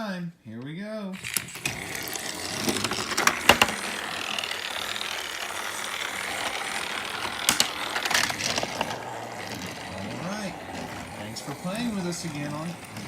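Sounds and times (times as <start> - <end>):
toy train motor whirring: 1.2 - 13.0.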